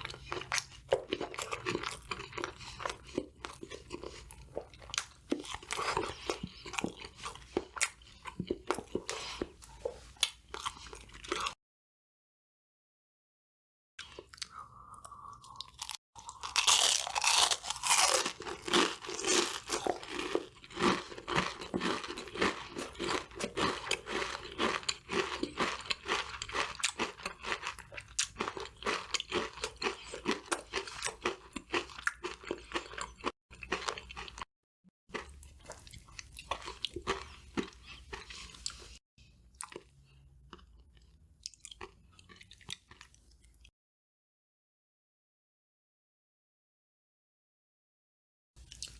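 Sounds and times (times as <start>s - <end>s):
crispy fried food crunching: 0.0s - 11.6s, 15.4s - 34.5s, 35.1s - 39.0s, 39.6s - 43.7s.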